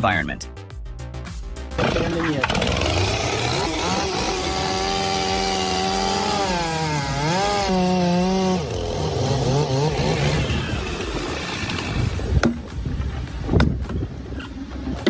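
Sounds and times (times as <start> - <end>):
chainsaw cutting wood: 1.8 - 13.8.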